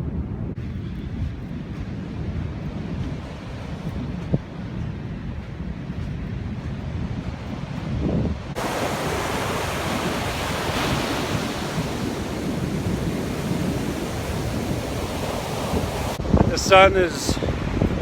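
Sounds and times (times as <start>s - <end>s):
wind rumbling on microphone: 0.0s - 18.0s
ocean surf washing onto beach: 8.5s - 18.0s.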